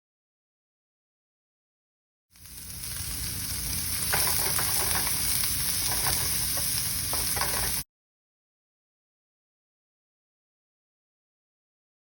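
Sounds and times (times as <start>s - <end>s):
food sizzling in a pan: 2.3s - 7.9s.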